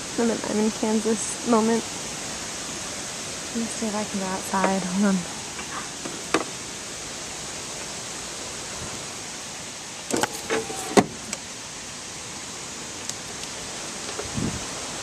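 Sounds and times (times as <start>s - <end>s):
wind through trees: 0.0s - 15.0s
door squeak: 10.1s - 11.2s.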